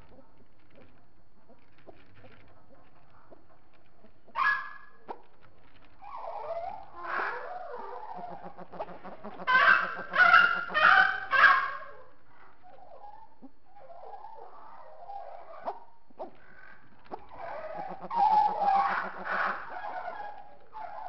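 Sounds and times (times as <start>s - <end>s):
birds chirping: 5.9s - 21.0s
birds honking calls: 6.1s - 11.9s, 16.5s - 21.0s.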